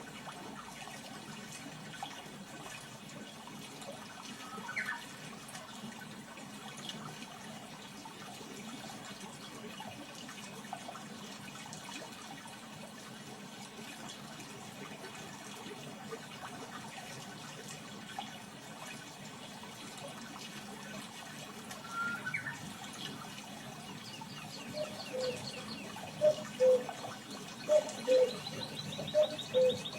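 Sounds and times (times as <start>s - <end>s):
running water rushing: 0.0s - 29.9s
birds calling: 21.8s - 29.9s.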